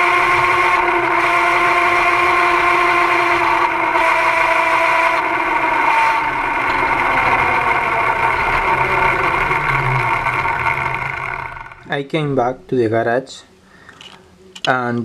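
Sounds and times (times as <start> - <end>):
electric motor and chain whining: 0.0 - 11.9.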